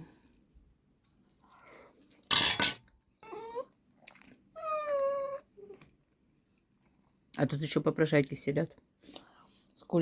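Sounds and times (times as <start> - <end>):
pet whining: 3.2 - 3.8, 4.5 - 5.9.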